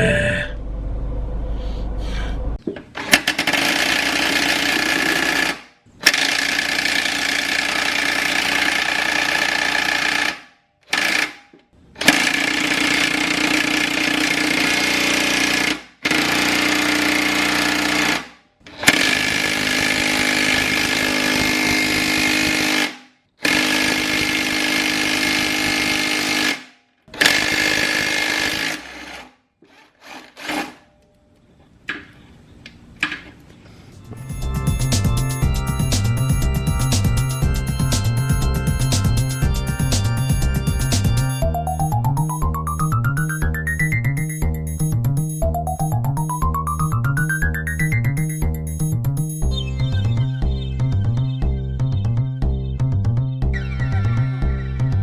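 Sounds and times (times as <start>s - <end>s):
power tool whining: 3.0s - 11.4s, 12.0s - 30.8s.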